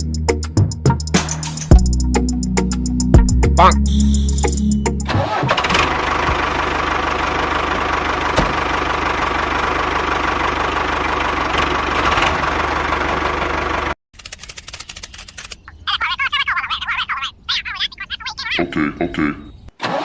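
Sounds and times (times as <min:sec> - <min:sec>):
engine idling: 0:05.1 - 0:14.0.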